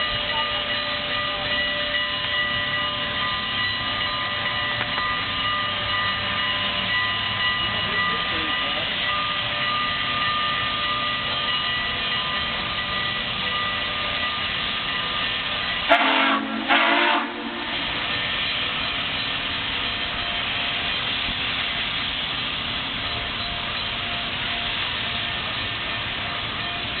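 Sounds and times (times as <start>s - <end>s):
steam locomotive hiss and rumble: 0.0s - 27.0s
steam whistle blasts: 15.9s - 18.2s.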